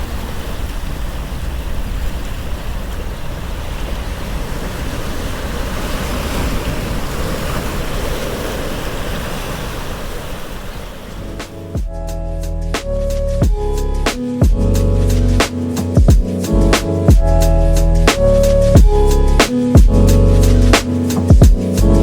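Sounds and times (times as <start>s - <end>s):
ocean surf washing: 0.0s - 12.0s, 13.6s - 22.0s
wind buffeting microphone: 0.0s - 12.0s.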